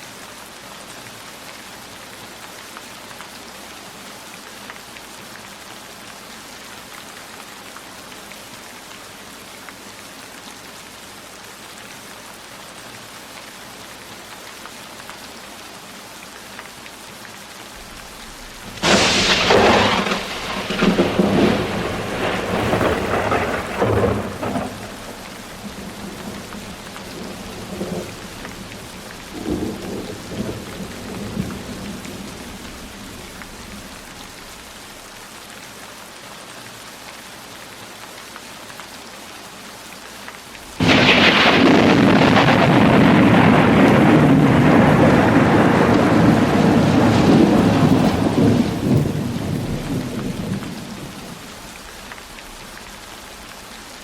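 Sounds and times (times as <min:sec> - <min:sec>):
steady rainfall: 0:00.0 - 0:54.0
loud thunderclap: 0:17.8 - 0:34.0, 0:40.8 - 0:51.5
rumble of thunder: 0:17.8 - 0:34.2, 0:40.8 - 0:51.6.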